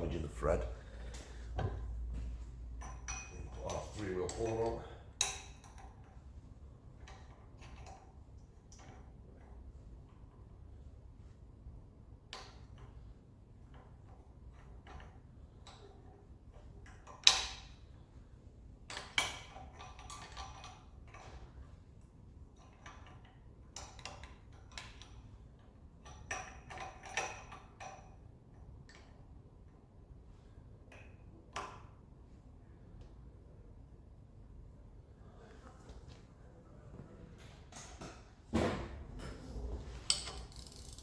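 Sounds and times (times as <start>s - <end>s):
metal tools clicking: 40.1s - 41.0s.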